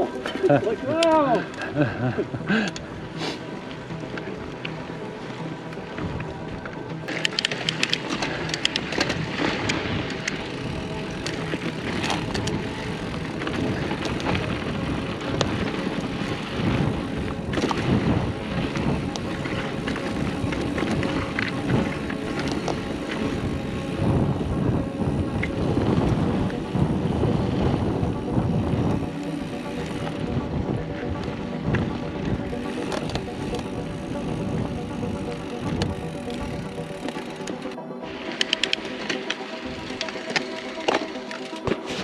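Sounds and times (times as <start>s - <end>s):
bike tyres rolling over dirt: 0.0s - 42.0s
bike knocking and rattling: 4.0s - 42.0s.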